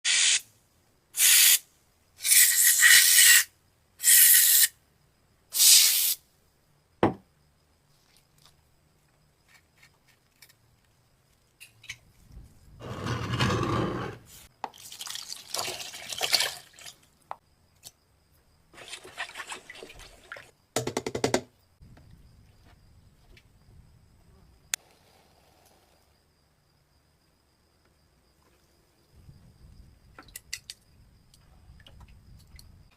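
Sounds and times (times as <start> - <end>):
hissing spray bursts: 0.0 - 0.4, 1.2 - 1.6, 2.2 - 4.7, 5.6 - 6.2
knock: 7.0 - 7.2.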